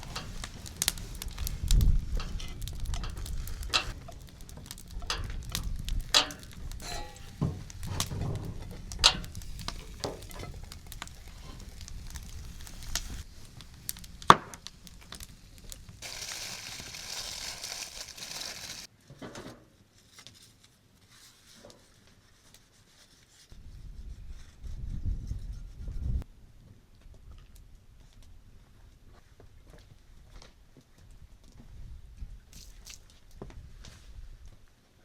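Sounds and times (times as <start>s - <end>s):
sharp clicks and knocks: 0.0s - 11.6s
steady hiss: 0.0s - 18.9s
food sizzling in a pan: 9.1s - 14.5s, 15.6s - 18.9s.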